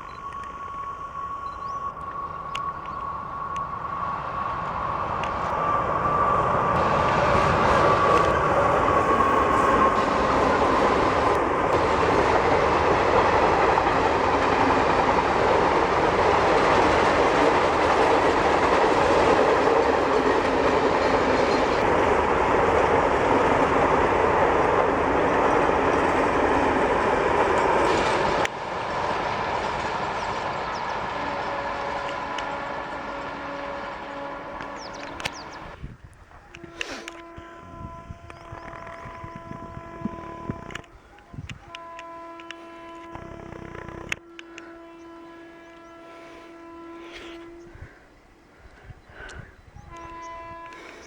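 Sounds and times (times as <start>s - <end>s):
train passing at high speed: 0.0s - 51.0s
wheels clacking over rail joints: 4.5s - 35.8s.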